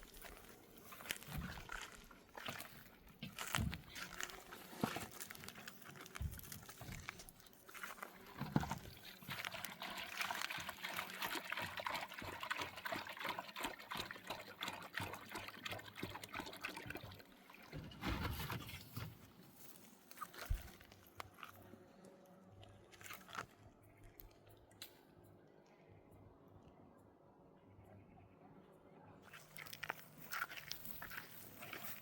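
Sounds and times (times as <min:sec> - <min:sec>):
water pouring and trickling: 0:00.0 - 0:19.0, 0:29.3 - 0:32.0.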